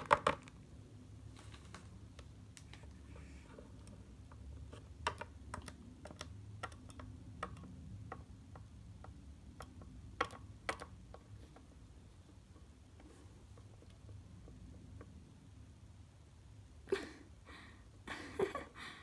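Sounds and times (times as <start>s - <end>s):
plastic objects clicking: 0.0s - 0.6s, 3.8s - 11.7s.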